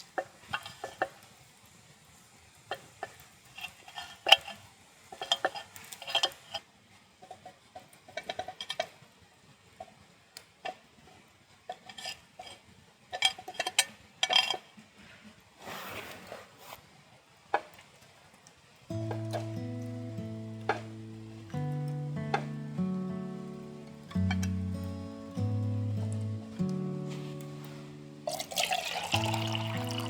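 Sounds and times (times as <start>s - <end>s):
metal cookware clinking: 11.7s - 14.7s, 20.5s - 21.4s, 24.1s - 24.8s, 28.3s - 30.0s
brief hiss: 15.6s - 17.0s.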